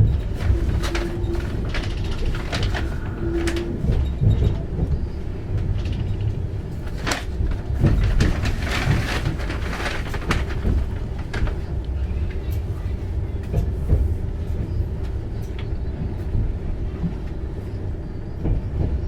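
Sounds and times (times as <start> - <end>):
knocks and rattles: 0.0 - 11.7
train wheels rumbling on track: 0.0 - 19.0.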